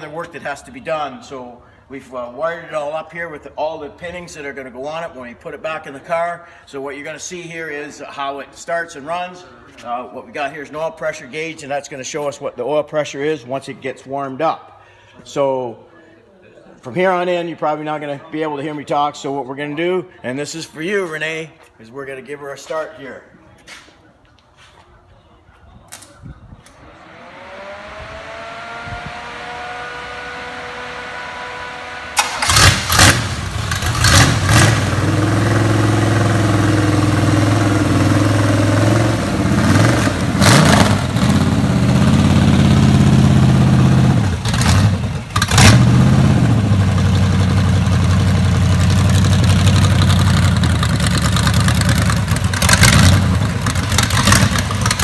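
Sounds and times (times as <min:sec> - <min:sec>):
rising whine: 0:26.6 - 0:32.2
car engine starting and revving: 0:26.7 - 0:55.0.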